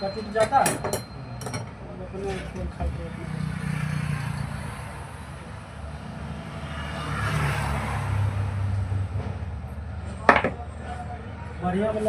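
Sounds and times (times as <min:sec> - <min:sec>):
motor vehicle passing: 0:02.9 - 0:10.3.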